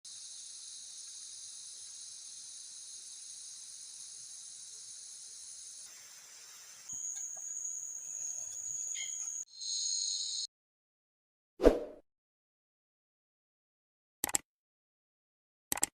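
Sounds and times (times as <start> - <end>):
forest insects buzzing: 0.1 - 10.5.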